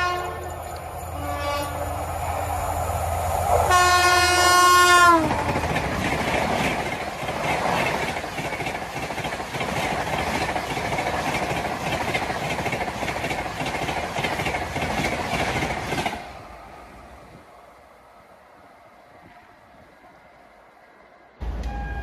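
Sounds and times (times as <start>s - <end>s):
train passing at speed: 0.0s - 22.0s
wheels clacking over rail joints: 5.1s - 16.3s.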